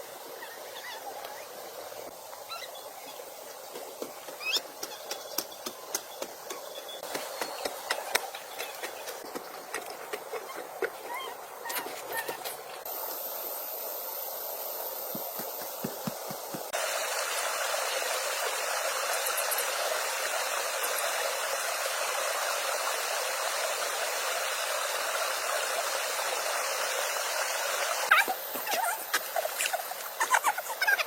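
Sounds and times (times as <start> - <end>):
high squeaks or chirps: 4.4 - 9.2
water rushing: 14.8 - 31.0.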